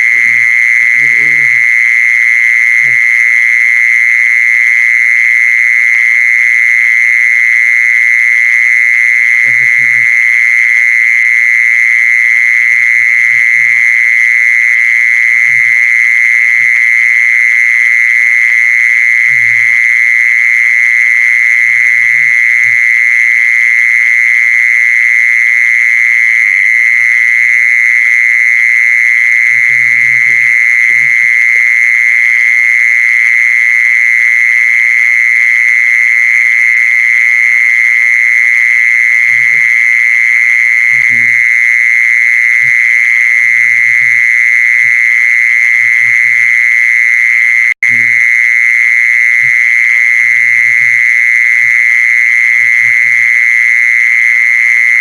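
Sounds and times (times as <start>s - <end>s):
high-pitched steady tone: 0.0s - 3.6s, 9.4s - 10.2s, 12.7s - 17.1s, 17.9s - 23.4s, 29.5s - 31.5s, 37.9s - 55.0s.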